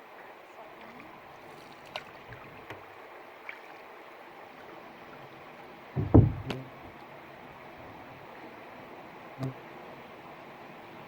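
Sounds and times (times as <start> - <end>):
paddle splash: 0.0 - 11.0
soft wash of water: 0.0 - 11.0
paddle knock: 6.0 - 7.0.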